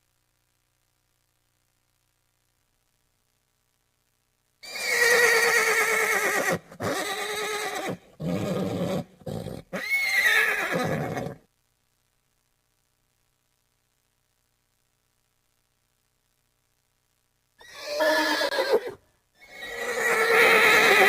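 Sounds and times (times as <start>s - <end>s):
horse whinnying: 4.6s - 11.4s, 17.6s - 21.0s.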